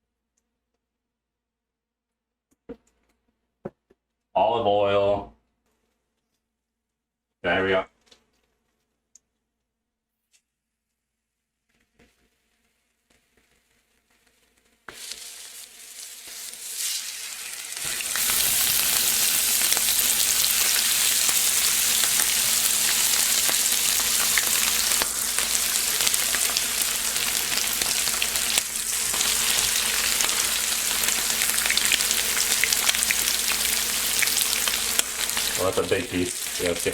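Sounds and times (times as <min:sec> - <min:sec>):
chicken sizzling in a frying pan: 0:14.9 - 0:36.9.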